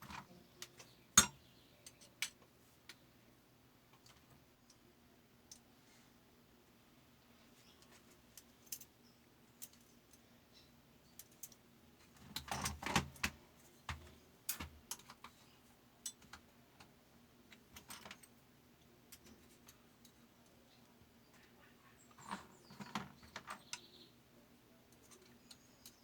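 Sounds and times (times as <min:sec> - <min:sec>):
metal parts clicking and clinking: 0:09.6 - 0:10.0, 0:17.5 - 0:18.4.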